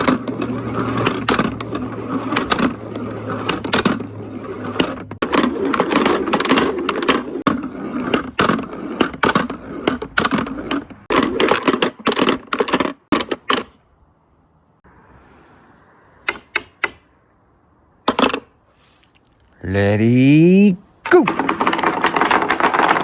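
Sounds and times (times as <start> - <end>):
marbles rolling and clattering: 0.0 - 13.5, 21.2 - 23.0.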